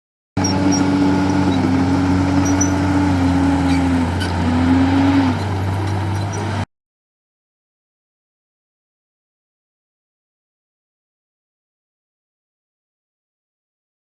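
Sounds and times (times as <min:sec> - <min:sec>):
heavy diesel engine running: 0:00.4 - 0:06.7.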